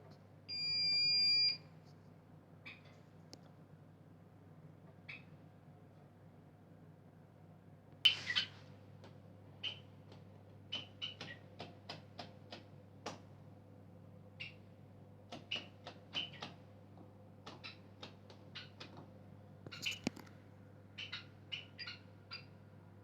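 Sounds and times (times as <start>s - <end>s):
short squeaks and clicks: 8.1s - 8.6s, 19.7s - 20.2s.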